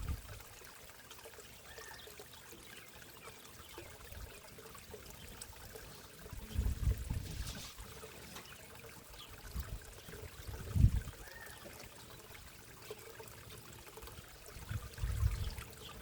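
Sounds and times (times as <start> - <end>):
water trickling into a pond: 0.0 - 16.0.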